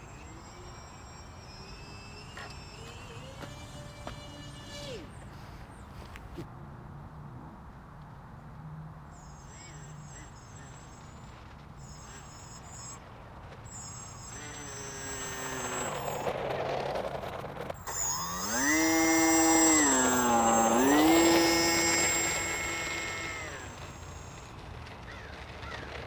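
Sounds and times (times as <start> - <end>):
model airplane motor whining: 0.0 - 6.5, 9.1 - 26.0.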